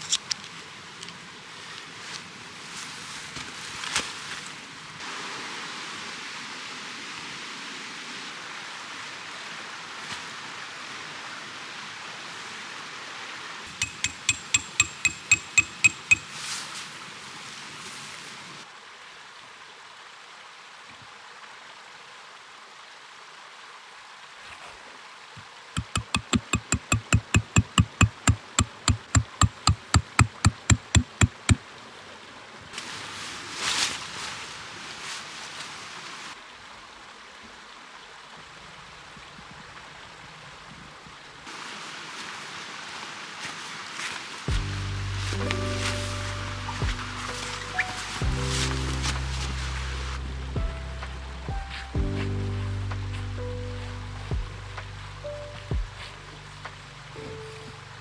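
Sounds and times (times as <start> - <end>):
hammer blows on metal: 13.7 - 16.6, 25.8 - 31.6.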